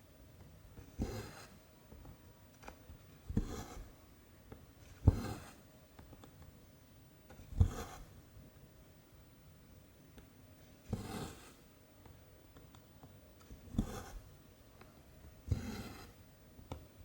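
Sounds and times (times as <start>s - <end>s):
thread rasping through fabric: 15.5s - 16.2s.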